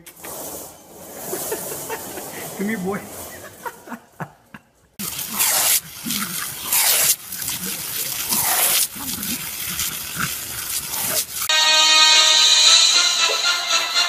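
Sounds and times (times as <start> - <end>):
dogs snapping at water: 5.0 - 11.5
hose spray nozzle hissing: 5.0 - 11.5.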